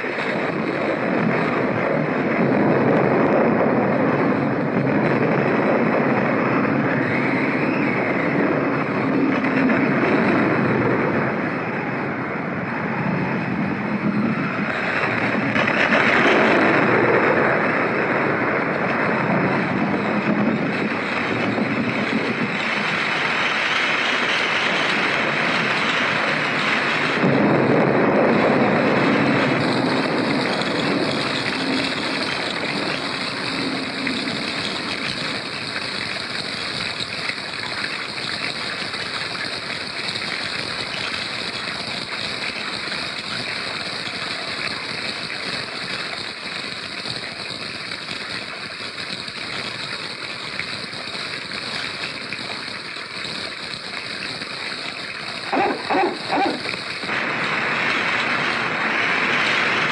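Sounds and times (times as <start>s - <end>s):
thunder rumbling: 0.0s - 37.2s, 55.1s - 59.9s
heavy rain pouring: 0.0s - 59.9s.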